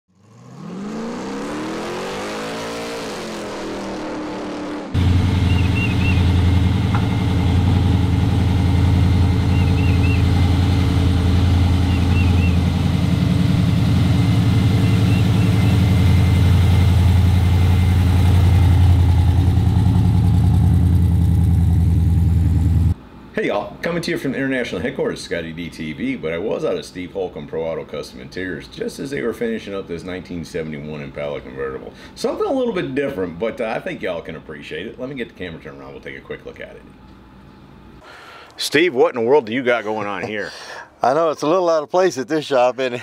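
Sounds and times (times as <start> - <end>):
engine revving: 0.1 - 23.0
car engine idling: 4.9 - 23.0.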